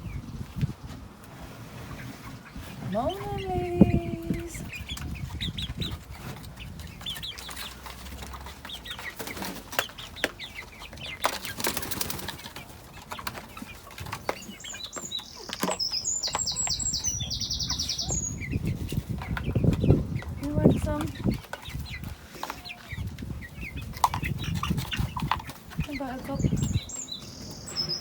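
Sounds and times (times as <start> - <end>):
chickens flapping wings: 5.9 - 10.3, 11.0 - 14.5
small bird rapid trill: 14.3 - 18.6.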